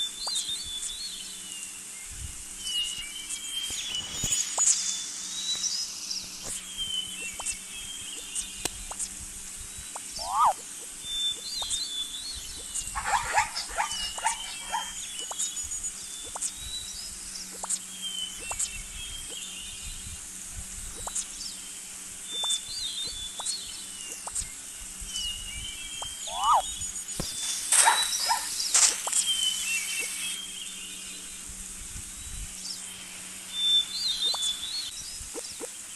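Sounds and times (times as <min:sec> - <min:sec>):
birds chirping and whistling: 0:00.0 - 0:35.8
low background hum: 0:00.0 - 0:35.9
crackling bird calls: 0:02.8 - 0:09.2, 0:09.8 - 0:19.6, 0:20.9 - 0:24.7, 0:25.9 - 0:31.3, 0:32.7 - 0:35.9.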